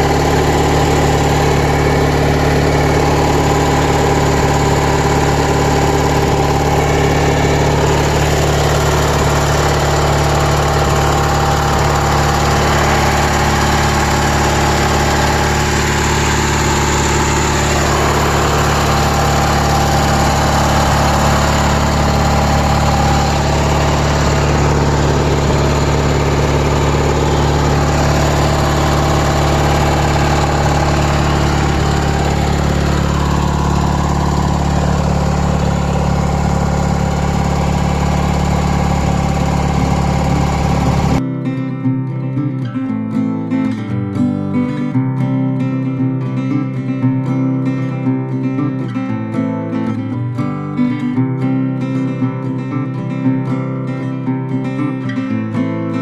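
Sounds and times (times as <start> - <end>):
lawn tractor engine running: 0.0 - 41.2.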